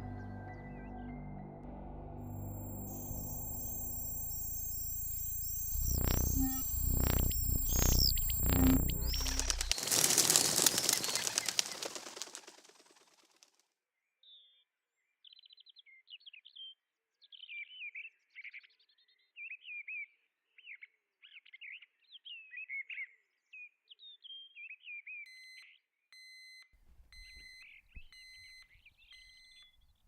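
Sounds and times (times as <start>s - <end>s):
electronic beeps: 2.2s - 9.8s.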